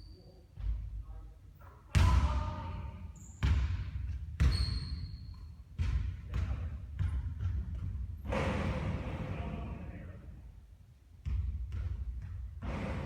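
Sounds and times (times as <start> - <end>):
basketball bouncing on court: 1.9 - 2.6, 3.4 - 9.3, 11.2 - 13.0.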